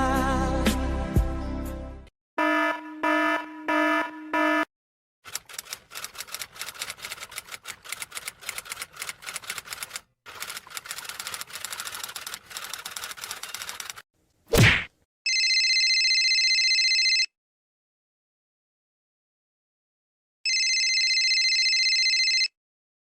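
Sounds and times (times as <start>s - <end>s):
electronic buzzer beeps: 2.4s - 4.7s
typewriter keys clacking: 5.3s - 14.0s.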